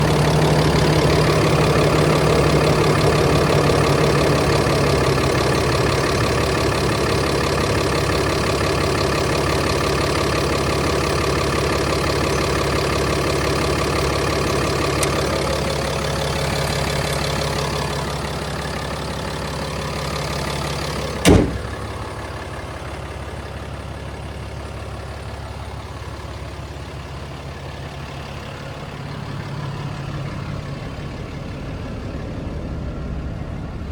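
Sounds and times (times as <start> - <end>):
pickup engine idling: 0.0 - 33.9
sharp thump: 21.2 - 22.0.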